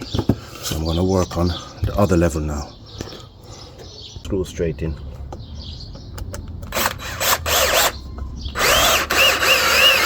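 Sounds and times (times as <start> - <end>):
power drill driving screws: 6.7 - 8.0, 8.6 - 10.0.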